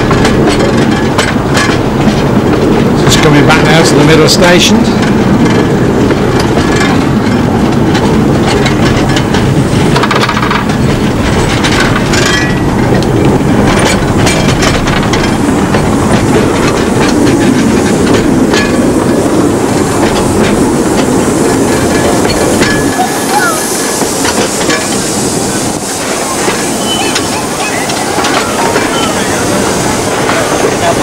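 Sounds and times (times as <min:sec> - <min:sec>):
train rumble: 0:00.0 - 0:31.0
wheels clattering over rail joints: 0:00.0 - 0:31.0.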